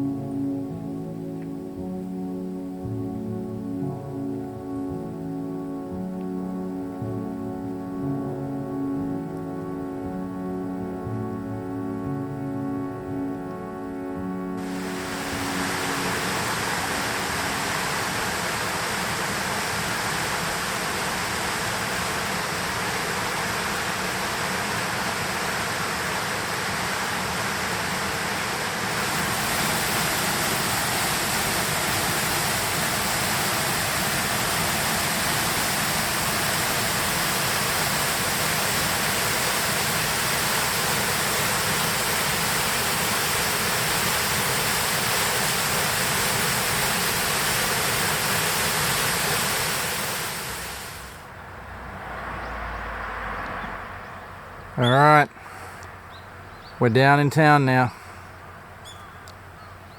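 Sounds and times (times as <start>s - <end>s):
running water rushing: 14.6s - 51.3s.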